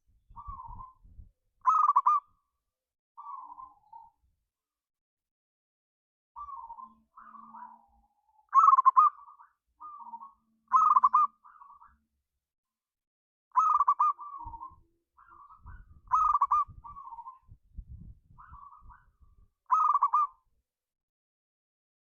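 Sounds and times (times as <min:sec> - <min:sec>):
dove cooing: 0:01.7 - 0:02.2, 0:08.6 - 0:11.4, 0:13.6 - 0:14.8, 0:15.4 - 0:17.4, 0:19.7 - 0:20.4.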